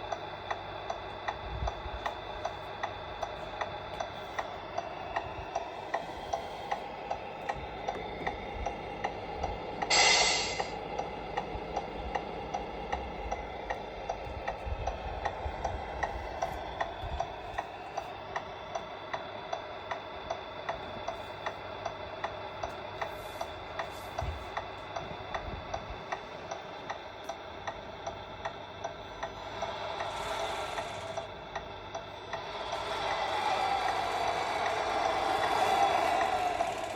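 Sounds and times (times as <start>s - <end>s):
steady ticking: 0.0s - 23.9s, 24.5s - 36.9s
short hiss: 9.9s - 10.8s.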